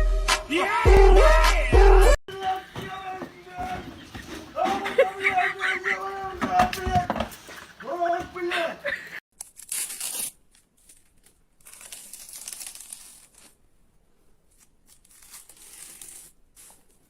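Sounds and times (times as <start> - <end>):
crinkling rustling noise: 2.3 - 5.5, 9.4 - 17.0.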